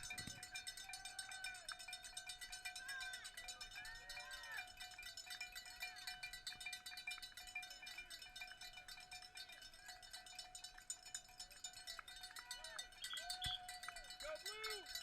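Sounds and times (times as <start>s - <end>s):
bell shaken rapidly: 0.0s - 15.0s.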